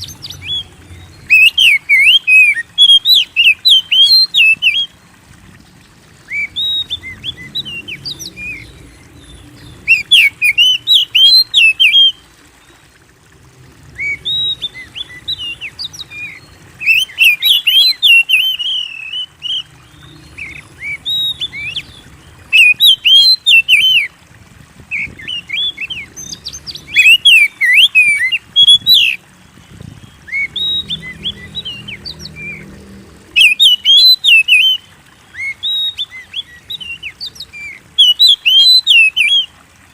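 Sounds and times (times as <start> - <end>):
bird singing whistled phrases: 0.0 - 4.9, 6.3 - 8.8, 9.6 - 12.2, 14.0 - 19.7, 20.3 - 24.1, 25.0 - 29.2, 30.2 - 32.6, 33.4 - 39.5.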